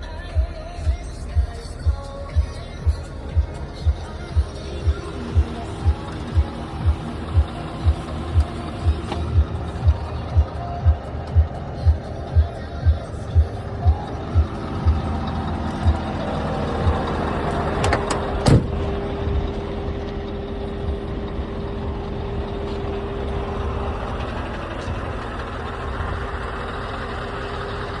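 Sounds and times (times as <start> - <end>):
truck engine running: 0.0 - 28.0
clicks: 4.0 - 10.0, 14.9 - 18.7.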